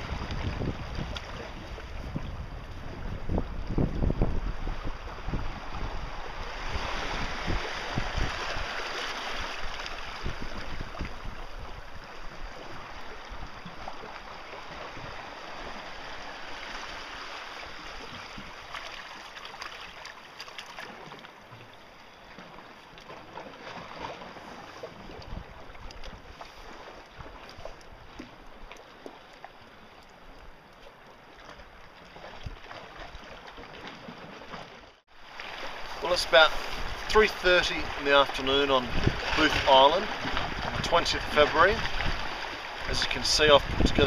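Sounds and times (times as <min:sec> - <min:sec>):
wind buffeting microphone: 0:00.0 - 0:08.8, 0:09.4 - 0:14.0, 0:38.8 - 0:39.6, 0:40.2 - 0:44.0
water rushing: 0:00.0 - 0:44.0.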